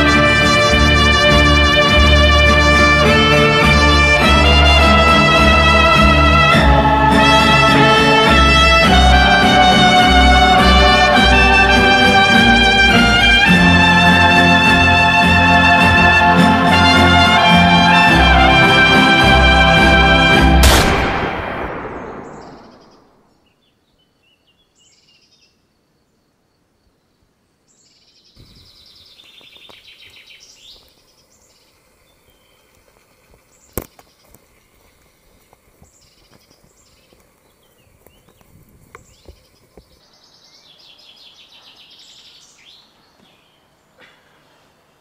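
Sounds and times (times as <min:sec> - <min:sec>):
birds chirping: 0:21.1 - 0:45.0.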